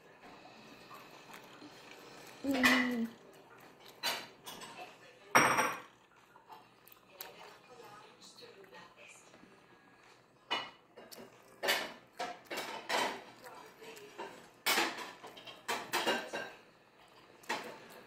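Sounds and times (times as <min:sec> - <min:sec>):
child crunching lettuce: 0:00.5 - 0:04.4, 0:06.0 - 0:08.9, 0:11.0 - 0:15.6.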